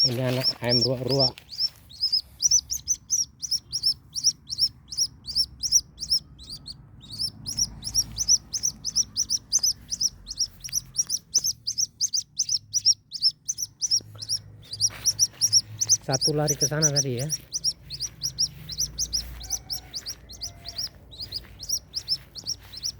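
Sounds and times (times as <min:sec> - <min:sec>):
waterhen chick peeping: 0:00.0 - 0:22.9.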